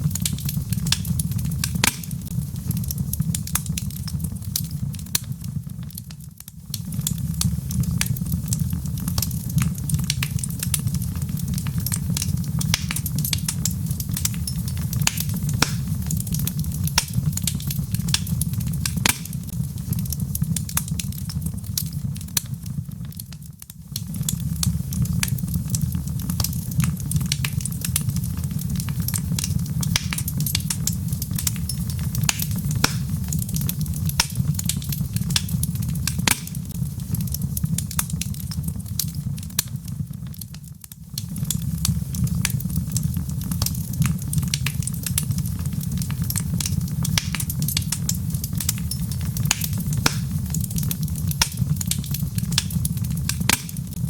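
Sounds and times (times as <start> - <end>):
fire crackling and popping: 0.0 - 54.0
low rumble of flame: 0.0 - 54.0.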